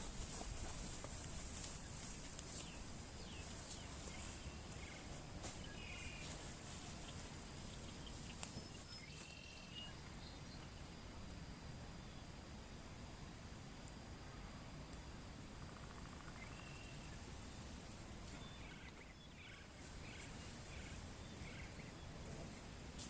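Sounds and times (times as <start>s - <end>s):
short chirping calls: 1.7s - 10.8s.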